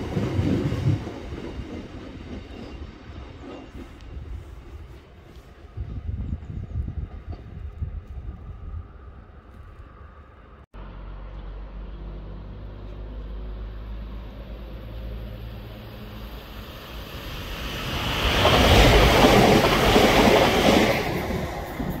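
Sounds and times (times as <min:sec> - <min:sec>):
train wheels rushing on rail: 0:00.0 - 0:09.0, 0:15.6 - 0:22.0
train engine hum: 0:00.0 - 0:22.0.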